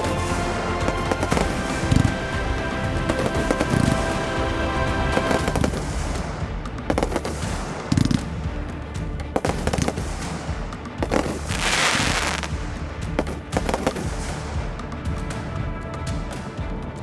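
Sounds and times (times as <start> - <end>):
firework shells banging: 0.0 - 4.2, 6.9 - 14.6
music soundtrack: 0.0 - 17.0
firework hissing crackle: 11.0 - 12.6.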